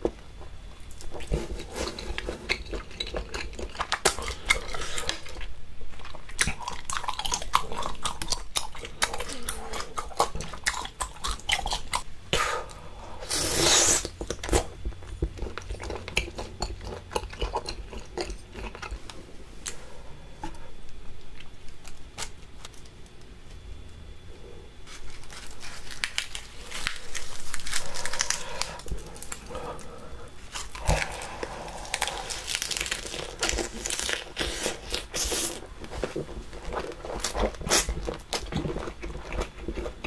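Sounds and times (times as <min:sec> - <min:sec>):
chewing with wet mouth clicks: 0:14.2 - 0:19.1, 0:37.2 - 0:40.0
lettuce leaf crinkling: 0:24.8 - 0:38.5.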